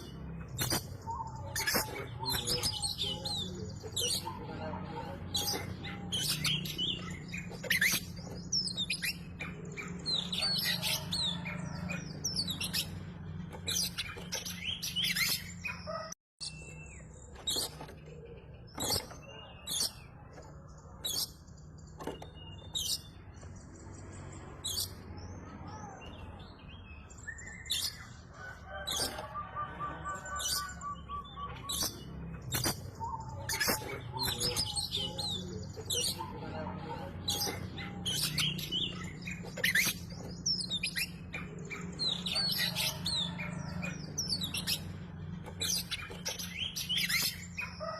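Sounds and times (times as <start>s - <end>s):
bird singing whistles and chirps: 28.8s - 36.3s.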